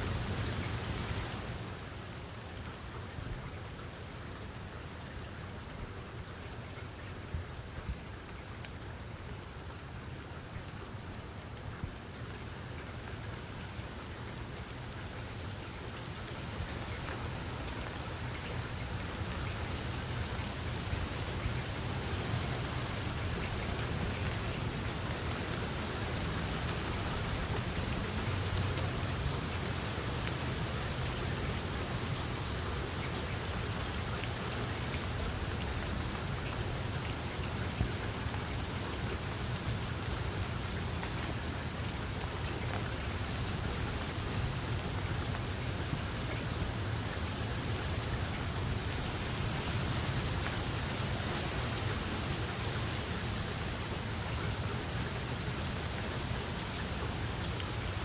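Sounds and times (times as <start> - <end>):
rain falling: 0.0 - 58.0
raindrop ticks: 10.5 - 51.8.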